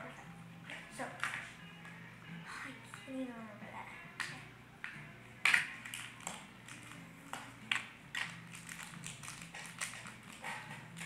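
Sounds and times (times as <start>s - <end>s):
plastic packaging crinkling and tearing: 8.2s - 10.4s.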